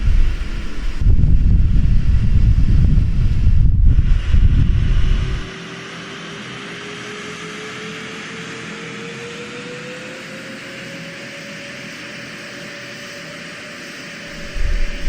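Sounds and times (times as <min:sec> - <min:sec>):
loud low rumbling: 0:00.0 - 0:05.5, 0:14.3 - 0:15.0
wind buffeting microphone: 0:00.0 - 0:05.5, 0:14.3 - 0:15.0
aircraft engines hissing: 0:00.0 - 0:15.0
thin rising whine: 0:00.0 - 0:15.0.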